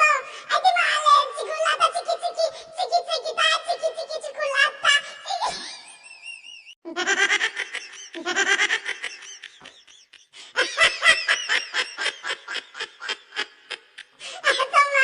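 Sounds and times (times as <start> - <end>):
rapid pulsing laughter: 5.5 - 14.2.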